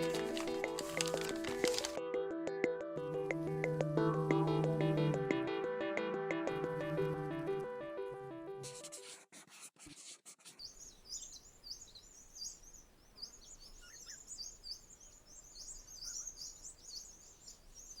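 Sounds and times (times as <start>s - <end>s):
birds chirping: 0.0s - 2.0s, 3.0s - 7.9s, 10.6s - 18.0s
faint steady hiss: 10.7s - 18.0s.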